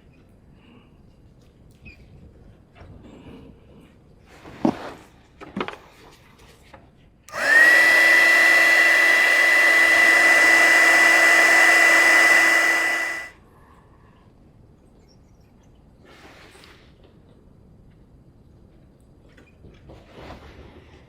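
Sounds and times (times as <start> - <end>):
heat gun fan whine: 7.3 - 13.3
rush of blown air: 7.3 - 13.3.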